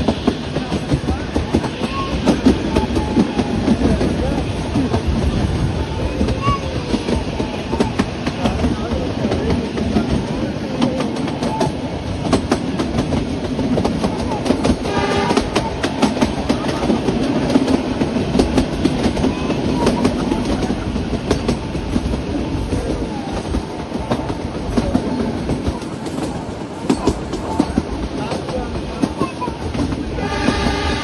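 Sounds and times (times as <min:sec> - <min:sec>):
train wheels clicking over rail joints: 0:00.0 - 0:31.0
short train horn: 0:14.8 - 0:15.6, 0:30.2 - 0:31.0.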